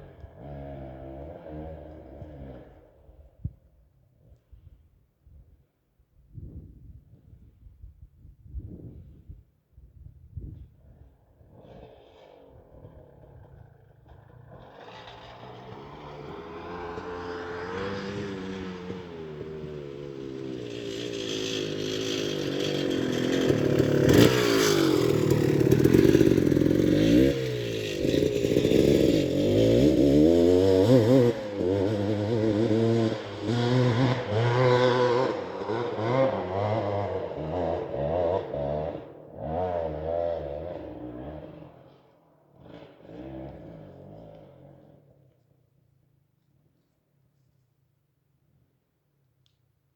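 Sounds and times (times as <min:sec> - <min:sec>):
dirt bike engine revving: 0:00.0 - 0:02.8, 0:11.5 - 0:45.0.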